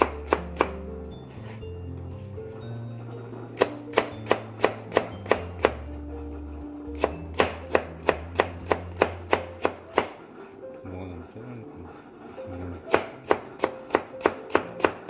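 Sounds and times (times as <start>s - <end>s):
knife chopping on cutting board: 0.0s - 0.8s, 3.6s - 5.9s, 7.0s - 10.2s, 12.9s - 15.0s.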